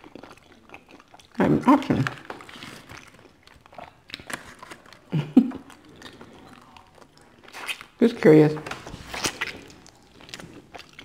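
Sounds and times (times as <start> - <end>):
lip smacks: 0.0 - 8.0, 8.8 - 11.0
small crunches: 0.0 - 8.0, 8.7 - 11.0
person chewing: 0.0 - 8.1, 9.0 - 11.0.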